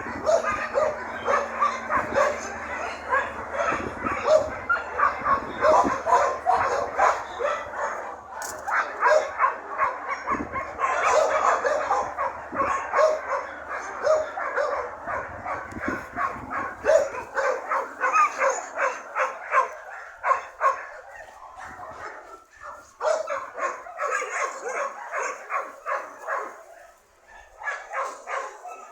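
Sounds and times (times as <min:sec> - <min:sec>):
dog yipping and whining: 0:00.2 - 0:07.7, 0:16.8 - 0:19.3.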